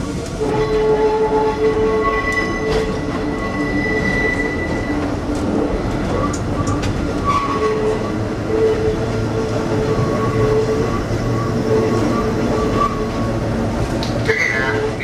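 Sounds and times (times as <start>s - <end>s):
rumble of train wheels: 0.0s - 15.0s
wheels squealing on track: 1.8s - 5.1s.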